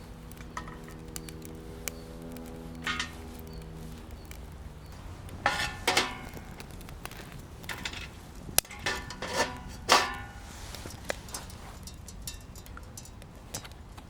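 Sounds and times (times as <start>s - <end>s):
metal cookware clinking: 0.4s - 1.4s, 2.8s - 3.6s, 5.4s - 6.6s, 7.6s - 10.6s, 11.2s - 13.2s.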